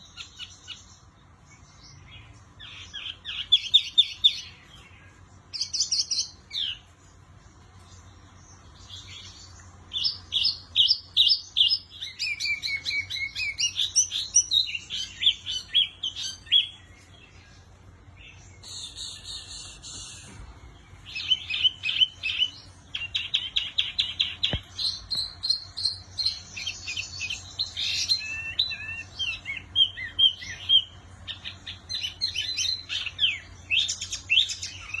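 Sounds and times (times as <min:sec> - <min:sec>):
faint low hum: 0:00.0 - 0:35.0
songbird chirping and trilling: 0:00.0 - 0:35.0.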